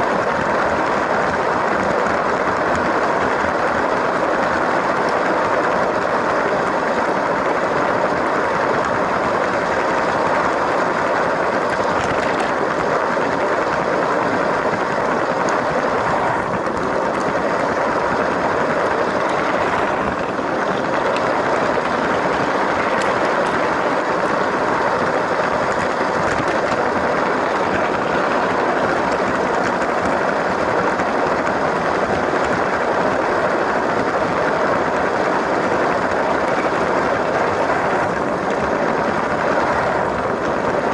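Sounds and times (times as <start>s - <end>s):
wheels rolling on plastic rails: 0.0s - 40.9s
toy train motor whirring: 8.6s - 40.9s.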